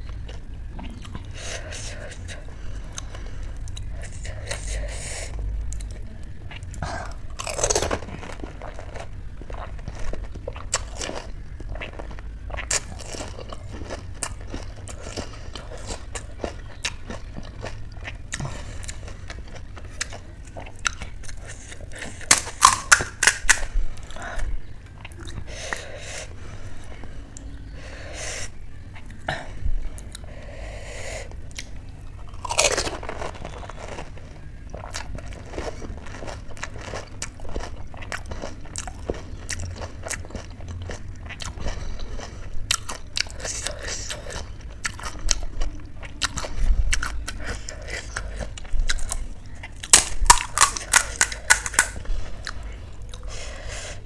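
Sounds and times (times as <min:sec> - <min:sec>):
chewing and crunching: 0:00.0 - 0:54.0
loud cracks of shell pressed open: 0:22.3 - 0:23.7.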